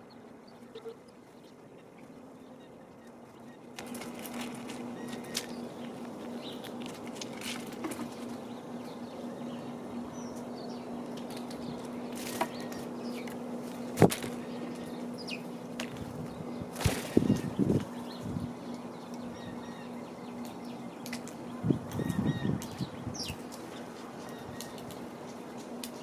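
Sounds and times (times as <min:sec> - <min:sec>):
faint high bird chirps: 0:00.0 - 0:03.7
steady low hum: 0:00.0 - 0:26.0
bird wings flapping: 0:03.8 - 0:08.4, 0:13.7 - 0:14.4, 0:16.7 - 0:17.9.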